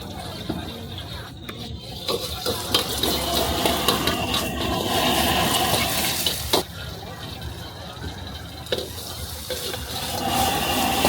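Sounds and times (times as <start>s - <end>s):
food sizzling in a wok: 2.0s - 6.7s, 8.6s - 11.0s.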